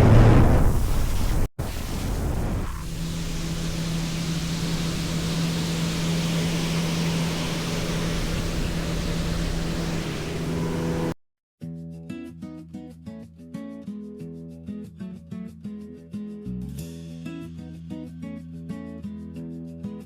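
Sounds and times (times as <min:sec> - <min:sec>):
wind and water noise: 0:00.0 - 0:11.2
small motor running: 0:02.7 - 0:11.2.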